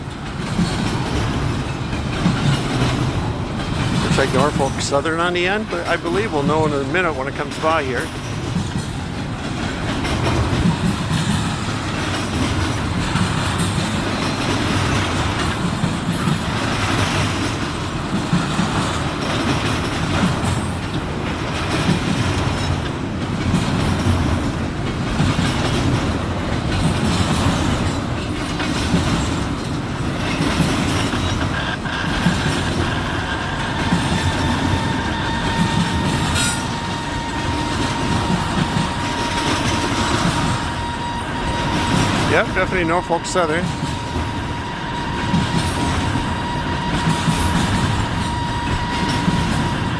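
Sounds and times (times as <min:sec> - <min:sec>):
freight train rumbling past: 0:00.0 - 0:49.9
wheels clattering over rail joints: 0:00.0 - 0:49.9
thin wheel squeal: 0:30.3 - 0:49.9.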